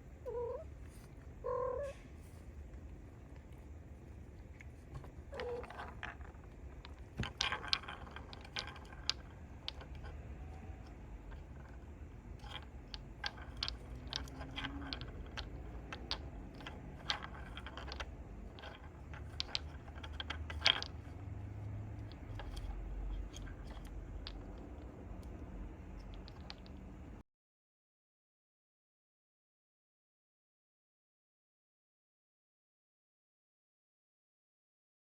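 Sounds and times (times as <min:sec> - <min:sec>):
kittens' claws scrabbling: 0:00.3 - 0:27.2.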